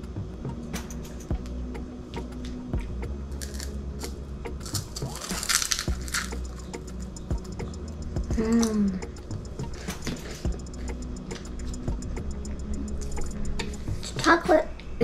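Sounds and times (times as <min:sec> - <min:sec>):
crunching a crisp wafer cone: 0:03.4 - 0:07.1.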